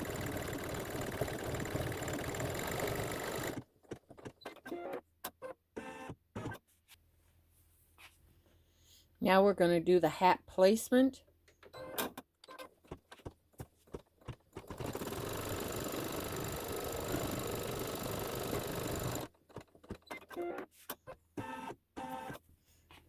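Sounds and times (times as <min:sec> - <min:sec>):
embroidery machine stitching: 0:00.0 - 0:05.0, 0:14.2 - 0:20.7.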